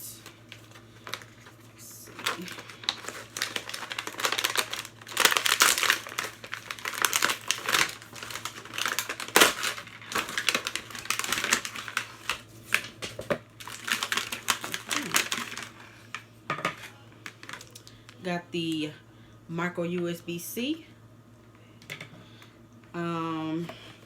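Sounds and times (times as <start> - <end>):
plastic packaging crinkling: 0.1 - 18.2.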